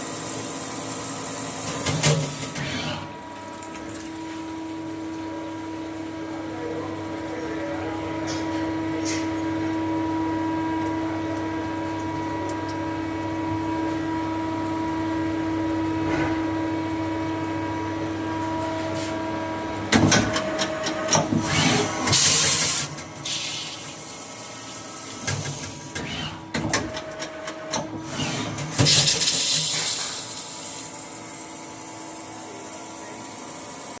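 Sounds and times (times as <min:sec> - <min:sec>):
machine motor whine: 0:16.8 - 0:33.8
machine cutting noise: 0:20.7 - 0:22.9.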